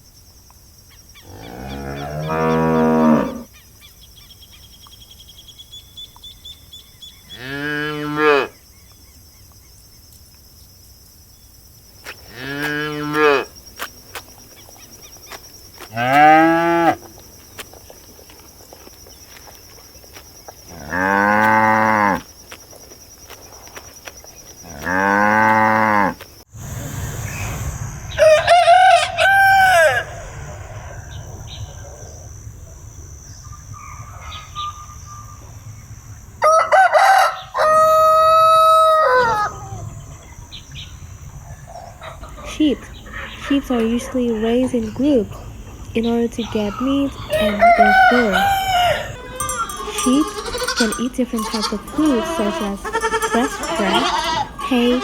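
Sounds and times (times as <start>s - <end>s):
rooster crowing: 28.1s - 31.0s, 36.4s - 39.8s, 47.3s - 55.0s
cattle mooing: 47.3s - 55.0s.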